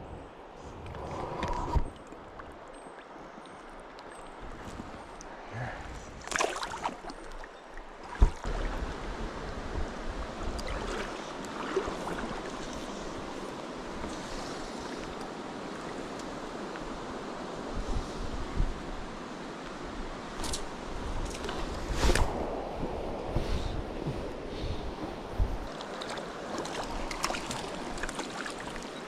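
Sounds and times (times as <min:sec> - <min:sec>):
river water flowing: 0:00.2 - 0:17.8, 0:24.2 - 0:29.0
brief rustle: 0:20.4 - 0:22.4.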